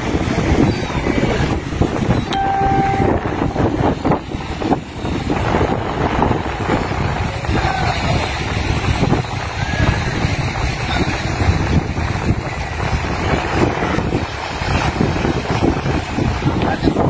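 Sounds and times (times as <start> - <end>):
wind buffeting microphone: 0.0 - 17.0
steady high tone: 2.3 - 5.6.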